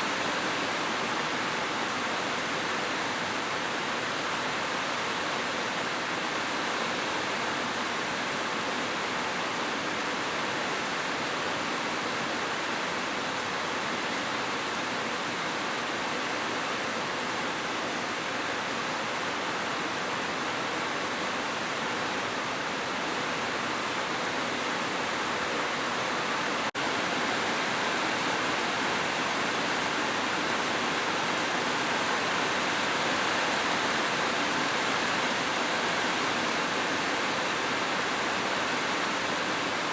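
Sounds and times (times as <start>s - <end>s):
heavy rain hiss: 22.0s - 39.9s.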